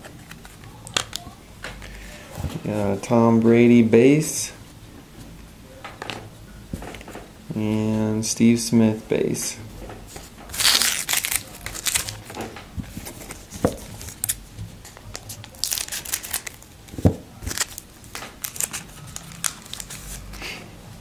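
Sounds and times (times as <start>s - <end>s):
wrapper tearing and crinkling: 10.5s - 12.4s, 13.2s - 14.4s, 15.1s - 16.7s, 17.4s - 20.3s.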